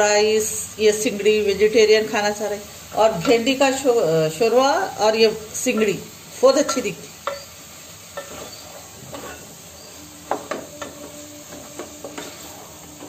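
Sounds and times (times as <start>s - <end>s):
pods sizzling in oil: 0.0s - 13.0s
wooden spoon knocking a pot: 10.3s - 12.3s.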